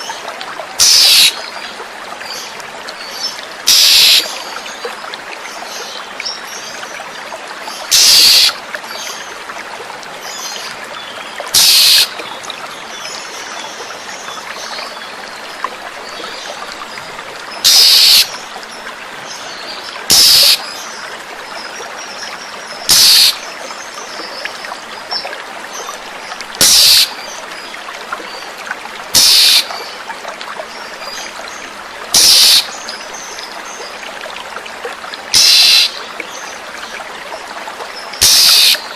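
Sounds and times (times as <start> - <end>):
running water: 0.0 - 38.9
bird rasping calls: 0.8 - 1.4, 3.7 - 4.3, 7.9 - 8.6, 11.6 - 12.1, 17.6 - 18.3, 20.1 - 20.6, 22.9 - 23.4, 26.6 - 27.1, 29.2 - 29.7, 32.2 - 32.7, 35.4 - 36.0, 38.2 - 38.8.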